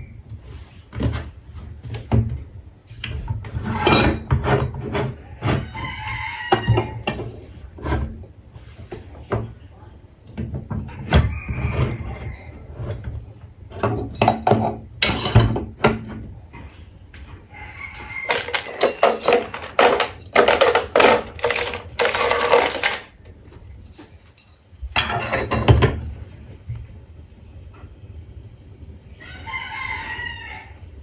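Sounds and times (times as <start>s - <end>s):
tools knocking and tapping: 13.8s - 16.2s, 18.3s - 23.1s.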